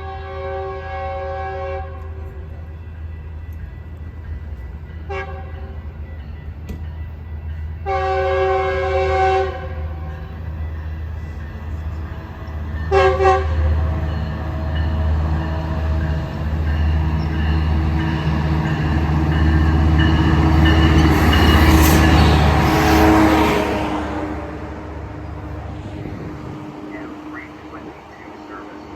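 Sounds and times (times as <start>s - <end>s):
train horn blasts: 0.0s - 2.3s, 5.1s - 5.8s, 7.8s - 10.1s, 12.9s - 14.8s, 20.4s - 24.6s
train rumble and wheel noise: 0.0s - 28.9s.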